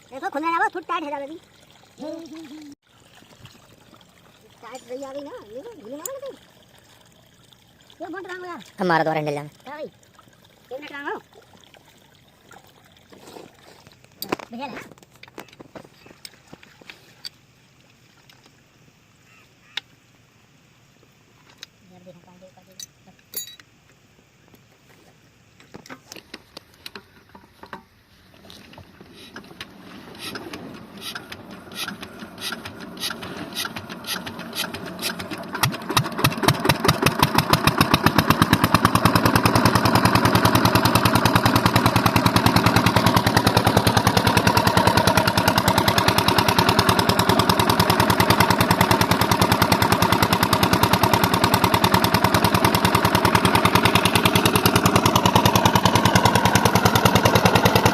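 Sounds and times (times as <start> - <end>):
diesel engine starting and chugging: 29.1 - 57.9.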